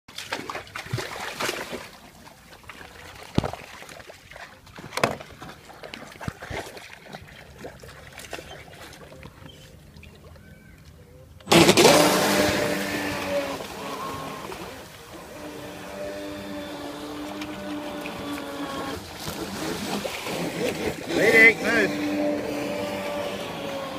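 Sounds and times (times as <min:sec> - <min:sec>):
water splashing: 0:00.1 - 0:23.9
model boat motor whining: 0:10.4 - 0:23.9.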